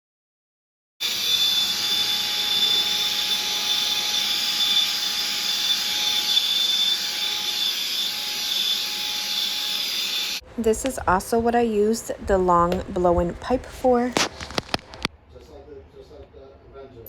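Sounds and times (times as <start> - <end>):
handheld vacuum whining: 1.0 - 10.8.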